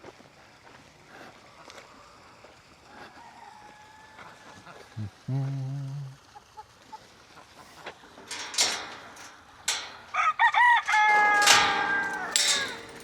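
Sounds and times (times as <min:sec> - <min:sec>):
rooster crowing: 0:03.0 - 0:04.9, 0:10.2 - 0:12.0.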